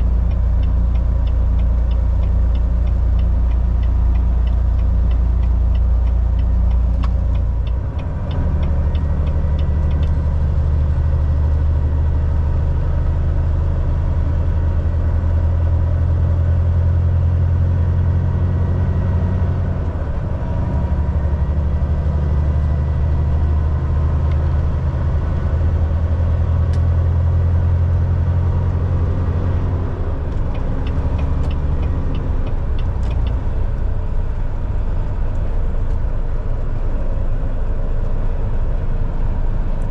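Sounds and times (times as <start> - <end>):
truck diesel engine running: 0.0 - 10.8, 23.8 - 39.9
road noise: 0.0 - 39.9.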